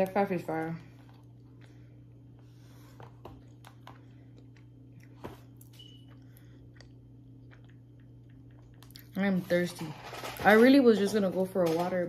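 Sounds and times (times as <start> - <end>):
steady low hum: 0.0 - 12.0
person chewing: 1.0 - 9.2.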